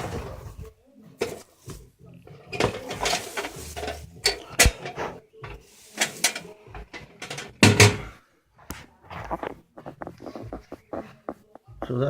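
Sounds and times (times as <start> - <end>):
hard objects knocking and clunking: 2.5 - 8.1.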